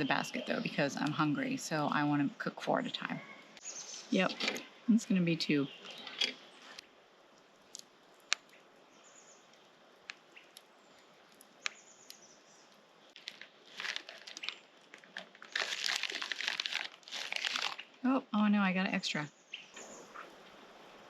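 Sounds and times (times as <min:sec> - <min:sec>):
plastic packaging crinkling: 0:13.2 - 0:18.0.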